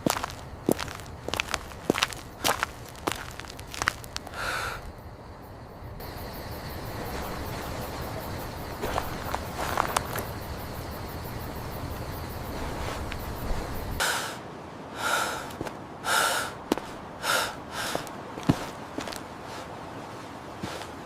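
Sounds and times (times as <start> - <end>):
person breathing sharply: 4.3 - 4.9, 14.0 - 18.1.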